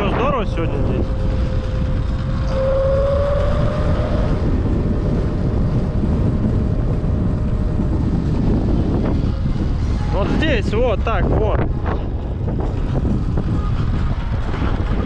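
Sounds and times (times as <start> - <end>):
electric motor whine: 0.0 - 15.0
wind buffeting microphone: 0.0 - 15.0.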